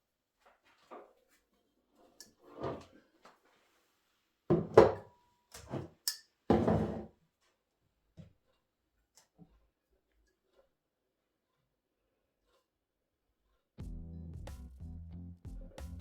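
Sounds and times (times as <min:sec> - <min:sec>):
objects knocking and thudding: 0:04.5 - 0:05.9, 0:06.5 - 0:07.1.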